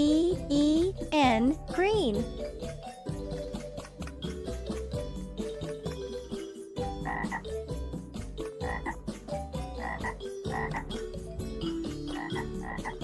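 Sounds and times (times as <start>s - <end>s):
frog croaking: 7.0s - 7.6s, 8.6s - 9.0s, 9.7s - 11.0s, 12.1s - 13.0s.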